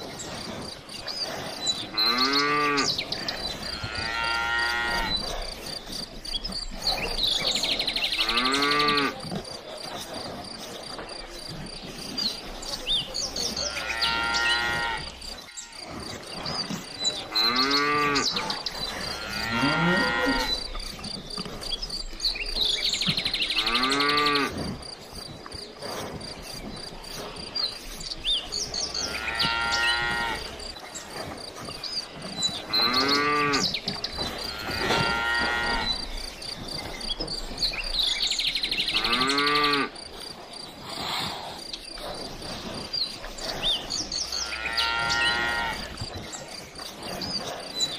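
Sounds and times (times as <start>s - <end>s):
cattle mooing: 1.8s - 3.0s, 3.6s - 5.3s, 8.1s - 9.2s, 13.5s - 15.9s, 17.2s - 20.6s, 28.9s - 30.5s, 32.7s - 33.7s, 34.4s - 36.0s, 38.9s - 39.9s, 44.3s - 45.9s.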